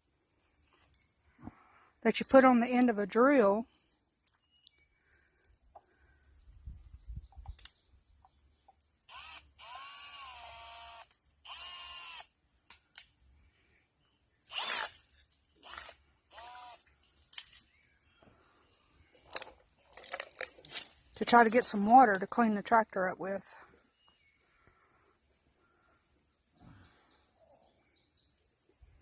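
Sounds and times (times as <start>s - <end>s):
cordless drill whining: 9.1s - 12.3s, 14.5s - 15.0s, 15.6s - 16.8s.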